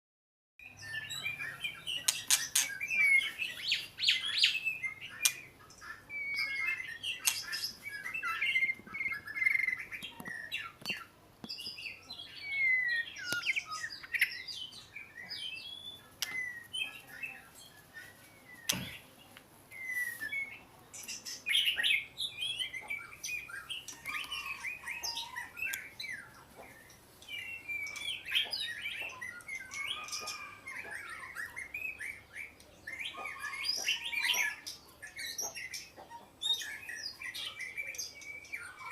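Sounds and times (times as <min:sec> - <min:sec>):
bird singing whistled phrases: 0:00.6 - 0:10.8, 0:12.3 - 0:17.0, 0:19.8 - 0:20.6, 0:21.4 - 0:26.3, 0:27.4 - 0:35.8.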